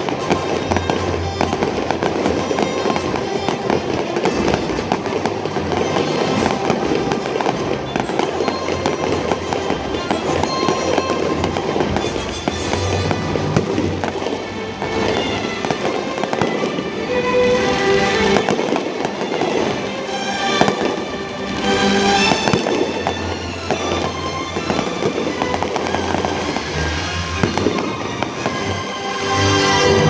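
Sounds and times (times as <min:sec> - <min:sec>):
fireworks bursting and crackling: 0:00.0 - 0:30.0
loud music: 0:00.0 - 0:30.0.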